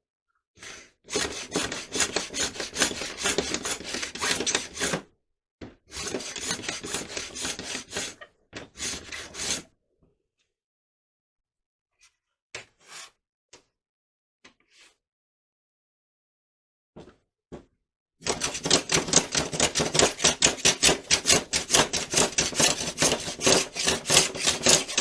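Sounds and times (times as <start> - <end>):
hand sanding strokes: 1.1 - 5.0, 6.0 - 8.1, 18.5 - 25.0.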